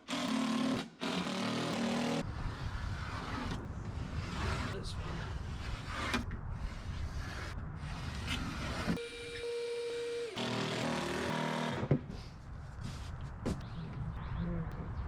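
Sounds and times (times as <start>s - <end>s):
cordless drill whining: 8.8s - 11.9s
rustling workshop noise: 10.4s - 13.7s.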